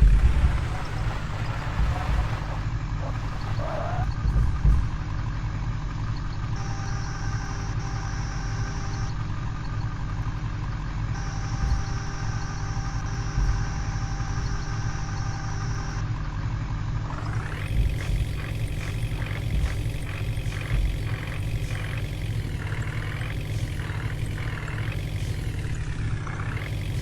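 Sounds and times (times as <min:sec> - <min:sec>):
faint high whine: 0:00.0 - 0:04.1, 0:17.1 - 0:27.0
truck diesel engine idling: 0:00.0 - 0:27.0.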